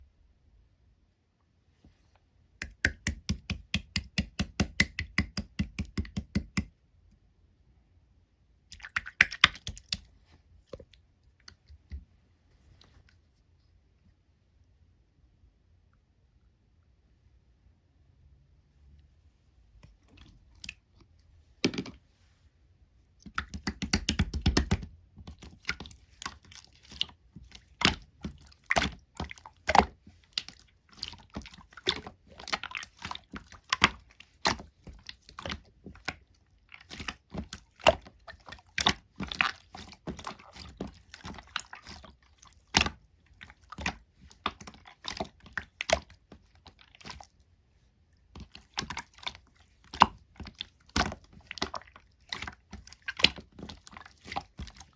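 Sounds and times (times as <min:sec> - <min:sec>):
slime squishing with wet clicks: 0:02.6 - 0:07.3, 0:08.6 - 0:12.2, 0:19.8 - 0:21.3, 0:23.0 - 0:54.9
slime squelching: 0:08.6 - 0:13.7, 0:19.8 - 0:22.0, 0:23.0 - 0:54.9.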